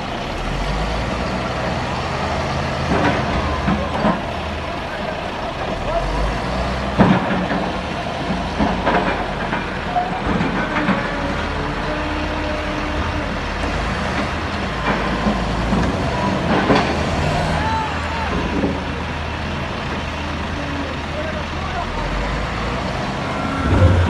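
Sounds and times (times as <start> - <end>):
heavy diesel machinery running: 0.0 - 24.0.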